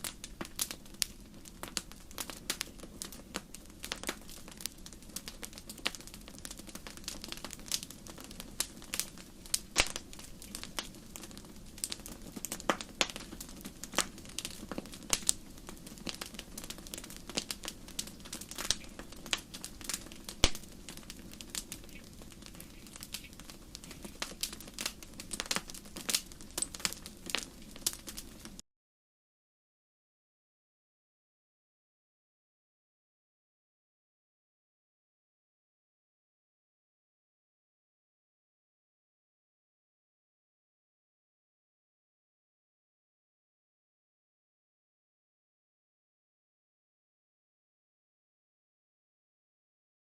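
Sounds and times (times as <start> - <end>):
campfire crackling: 0.0 - 28.6.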